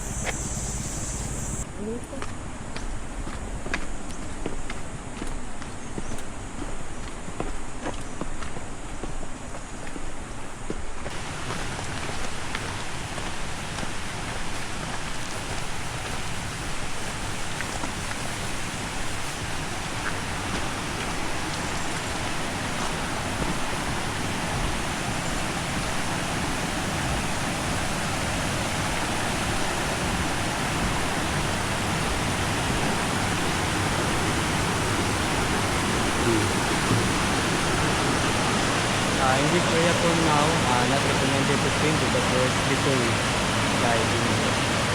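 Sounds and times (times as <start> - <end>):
waterfall rushing: 11.1 - 44.9.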